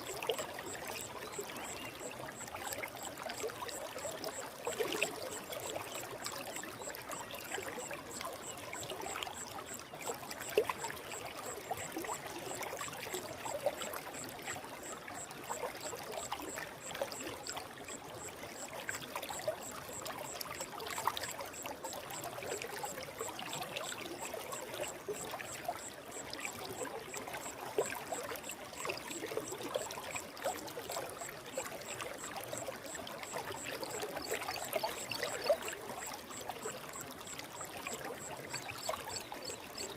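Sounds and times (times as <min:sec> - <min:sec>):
forest stream flowing: 0:00.0 - 0:39.9
water trickling and splashing: 0:00.0 - 0:39.9.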